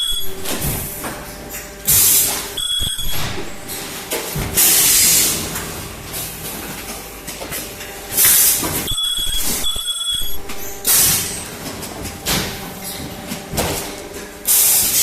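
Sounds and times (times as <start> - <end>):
high steady tone: 0.0 - 0.5, 8.9 - 11.1
hissing bursts of released air: 4.6 - 5.4, 14.5 - 15.0.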